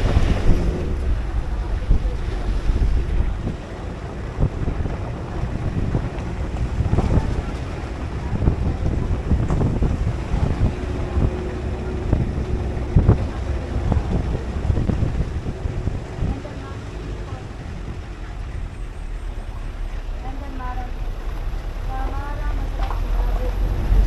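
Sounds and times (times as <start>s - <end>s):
vehicle low rumble: 0.0s - 24.0s
wind buffeting microphone: 0.0s - 24.0s.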